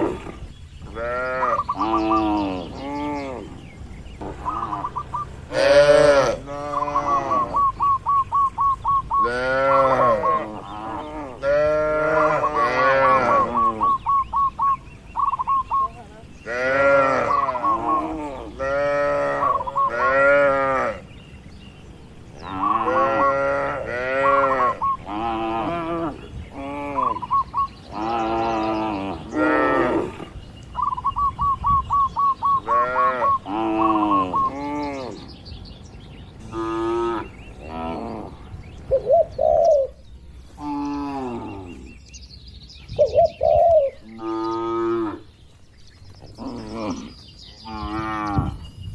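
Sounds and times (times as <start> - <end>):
cattle mooing: 5.5 - 7.8, 9.2 - 14.0, 16.4 - 21.0, 22.5 - 27.2.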